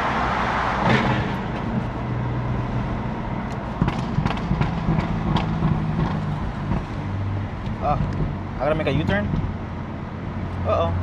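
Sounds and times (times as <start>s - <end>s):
car engine running: 1.3s - 11.0s
exhaust pops: 3.5s - 9.6s.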